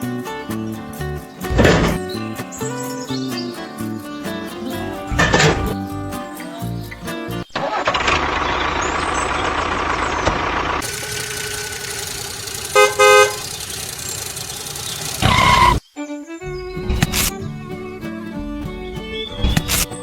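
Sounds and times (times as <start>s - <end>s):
vehicle engine running: 8.0s - 15.8s
horn honks: 10.8s - 13.9s.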